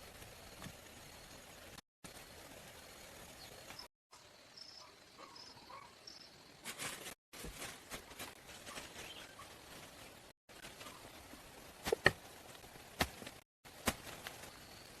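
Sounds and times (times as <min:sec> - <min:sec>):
insect hiss: 0:00.0 - 0:05.3.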